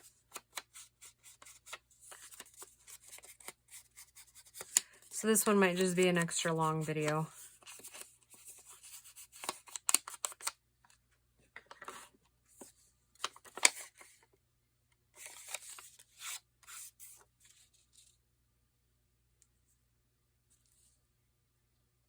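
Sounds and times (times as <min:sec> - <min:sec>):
paper rustling: 0:00.0 - 0:10.5, 0:11.8 - 0:14.2, 0:15.2 - 0:18.1.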